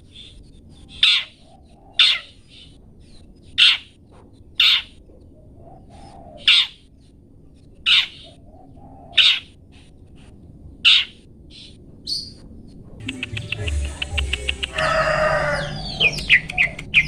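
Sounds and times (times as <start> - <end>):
shrike harsh calls: 13.0 - 17.0.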